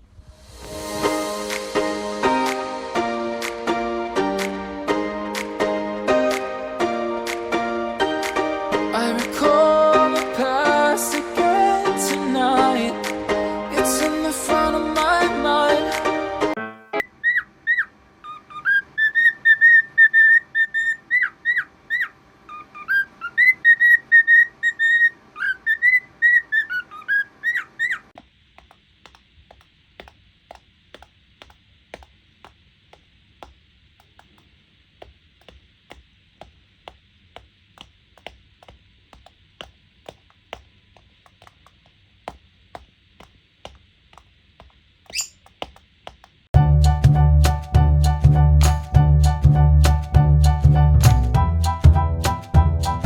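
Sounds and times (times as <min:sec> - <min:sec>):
cockatiel whistling: 0:17.2 - 0:28.0, 0:45.1 - 0:45.4
faint clicks and taps: 0:28.2 - 0:46.5.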